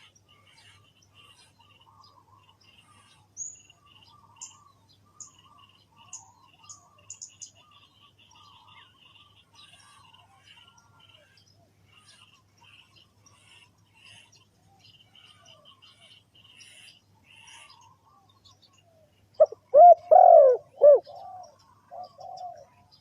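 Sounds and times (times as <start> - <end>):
soft low bird calls: 0.0 - 23.0.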